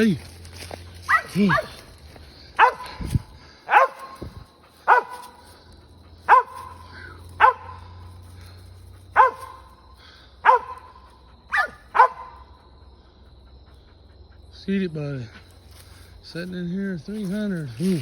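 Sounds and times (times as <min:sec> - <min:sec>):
dog barking sharply: 0:01.1 - 0:01.8, 0:02.6 - 0:02.8, 0:03.7 - 0:04.3, 0:04.9 - 0:05.3, 0:06.3 - 0:06.7, 0:07.4 - 0:07.8, 0:09.2 - 0:09.6, 0:10.4 - 0:12.4.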